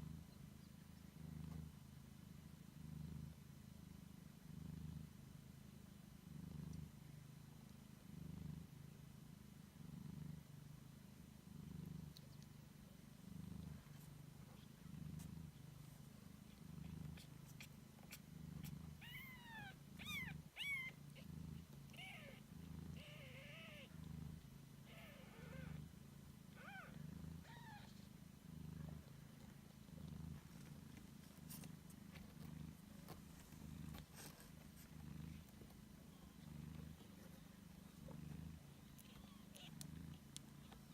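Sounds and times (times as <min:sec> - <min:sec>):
cats purring: 0:00.0 - 0:40.9
kittens mewing: 0:17.2 - 0:21.3.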